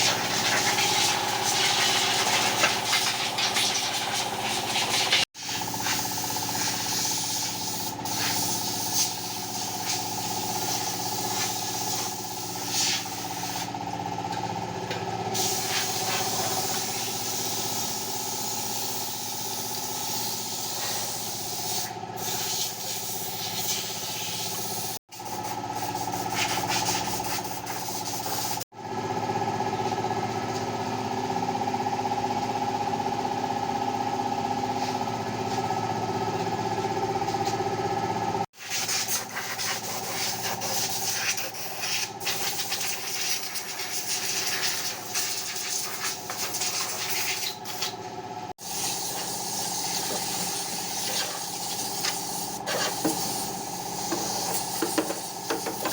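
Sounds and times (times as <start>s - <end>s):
engine running: 0.0s - 55.9s
loud hissing spray: 3.0s - 13.7s.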